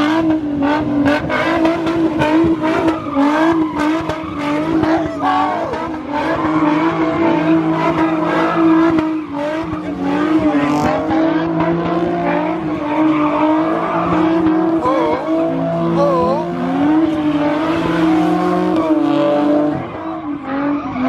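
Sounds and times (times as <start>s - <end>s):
car engine running hard: 0.0s - 21.0s
car tires squealing: 0.0s - 21.0s.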